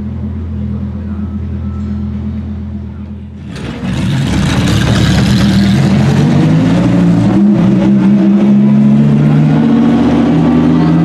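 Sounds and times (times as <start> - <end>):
loud car engine at raised revs: 3.3 - 11.0.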